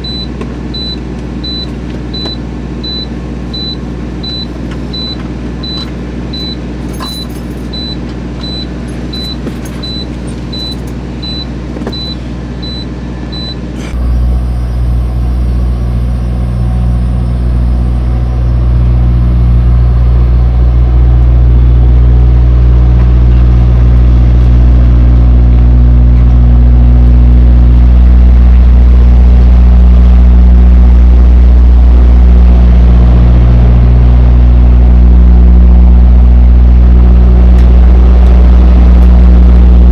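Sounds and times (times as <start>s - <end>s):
high-pitched beeps: 0.0s - 6.6s, 7.2s - 13.6s
diesel engine rumbling: 0.0s - 39.9s.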